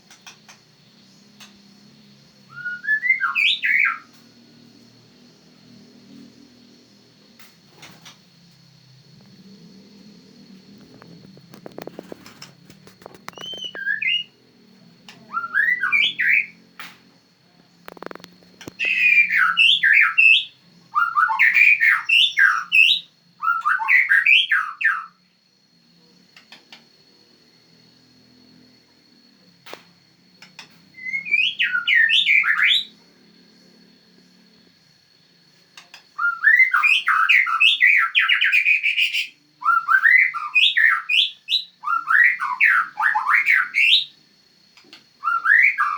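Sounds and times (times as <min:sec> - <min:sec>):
bird singing whistled phrases: 0:02.5 - 0:04.1, 0:13.3 - 0:14.4, 0:15.1 - 0:16.6, 0:18.7 - 0:25.1, 0:31.0 - 0:32.9, 0:36.2 - 0:44.1, 0:45.2 - 0:45.9.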